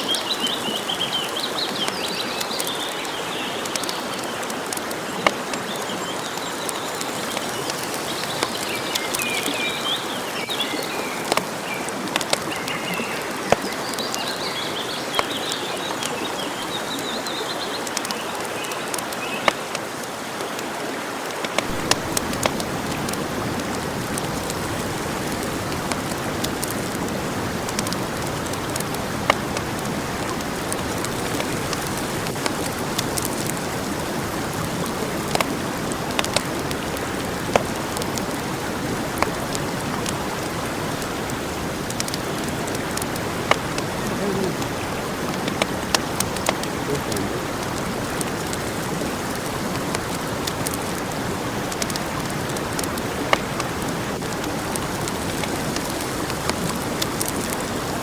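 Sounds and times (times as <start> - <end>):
songbirds singing: 0.0 - 19.7, 41.9 - 47.7
campfire crackling and hissing: 0.0 - 58.0
sharp pops from fire: 21.4 - 33.6.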